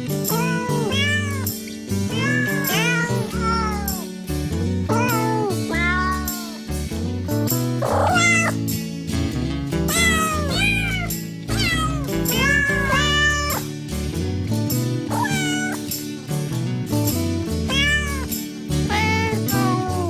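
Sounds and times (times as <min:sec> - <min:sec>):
music with bass line: 0:00.0 - 0:20.0
cat meowing: 0:00.3 - 0:04.1, 0:04.9 - 0:06.6, 0:07.8 - 0:08.6, 0:09.9 - 0:13.7, 0:15.1 - 0:15.9, 0:17.7 - 0:18.3, 0:18.9 - 0:20.0.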